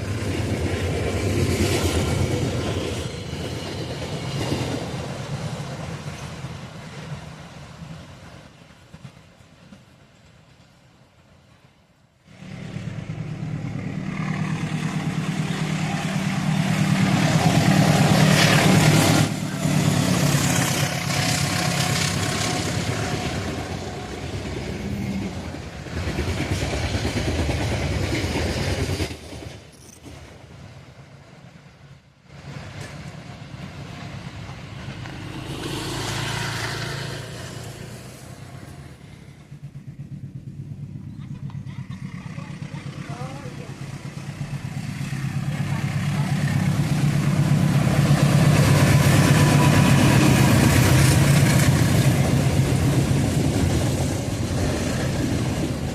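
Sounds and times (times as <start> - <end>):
road noise: 0.0 - 28.1, 29.6 - 55.9
vehicles passing: 12.3 - 25.9, 32.9 - 55.9.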